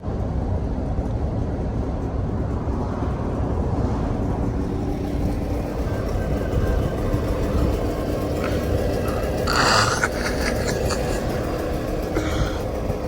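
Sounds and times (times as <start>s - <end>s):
faint steady hum: 0.0s - 13.0s
low vehicle rumble: 0.0s - 13.0s.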